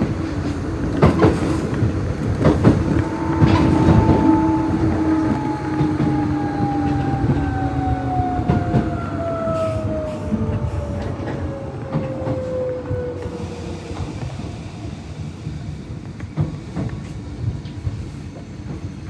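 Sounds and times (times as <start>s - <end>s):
wheels clicking over rail joints: 0.0s - 13.0s
electric train motor whine: 2.2s - 11.8s.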